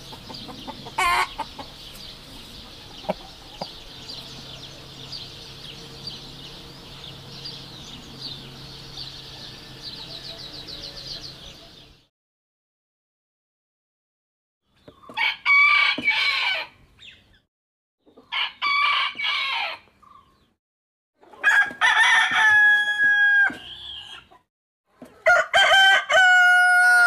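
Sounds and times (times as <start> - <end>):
chicks peeping: 0.0 - 11.9
chicken squawk: 0.2 - 1.7.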